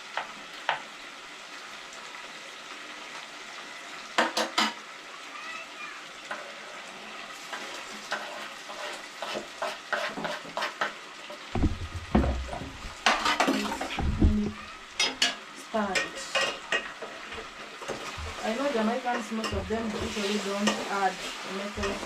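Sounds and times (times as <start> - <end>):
food sizzling: 0.0 - 22.0
spoon scraping cooking pot: 7.6 - 11.0, 11.6 - 22.0
dull thumps: 11.6 - 13.3, 13.9 - 14.7, 19.5 - 20.2
utensils clinking: 11.6 - 21.0, 21.8 - 22.0.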